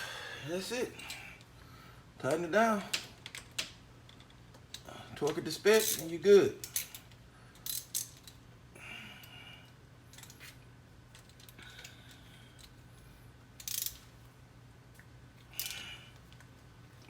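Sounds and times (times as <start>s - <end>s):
socket wrench ratcheting: 5.7s - 8.4s, 13.6s - 14.1s.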